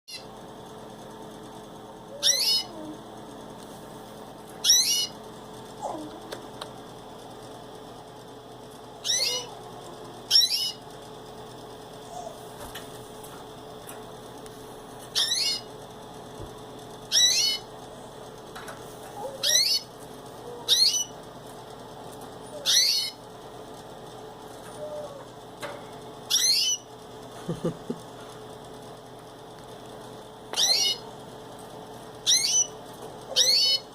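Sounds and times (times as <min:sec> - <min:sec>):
faint steady hum: 0:00.1 - 0:33.9
canary call notes: 0:02.2 - 0:02.7, 0:04.6 - 0:05.2, 0:09.0 - 0:09.5, 0:10.3 - 0:10.8, 0:15.2 - 0:15.7, 0:17.1 - 0:17.7, 0:19.2 - 0:19.9, 0:20.5 - 0:21.1, 0:22.6 - 0:23.2, 0:26.3 - 0:26.9, 0:30.6 - 0:31.1, 0:32.2 - 0:33.9.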